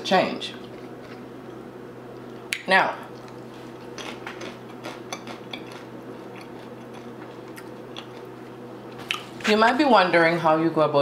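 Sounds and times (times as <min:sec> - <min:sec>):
steady low hum: 0:00.0 - 0:11.0
crunchy chewing: 0:02.2 - 0:09.4.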